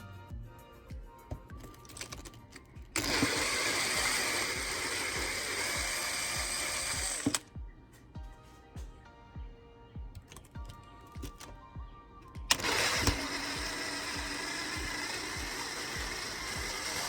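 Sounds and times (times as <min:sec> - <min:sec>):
background music with steady beat: 0:00.0 - 0:17.0
power drill running: 0:03.0 - 0:07.5, 0:12.4 - 0:17.0.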